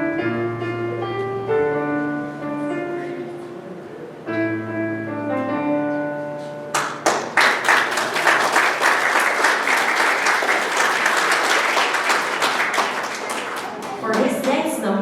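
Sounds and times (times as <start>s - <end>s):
audience applause: 6.8s - 14.6s.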